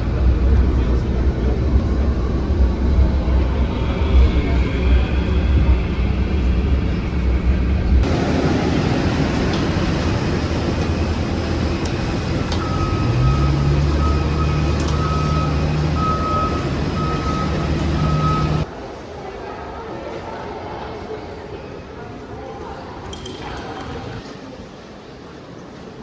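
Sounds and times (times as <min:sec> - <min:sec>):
heavy vehicle engine running: 0:00.0 - 0:18.7
electronic beeping alarm: 0:12.6 - 0:18.6.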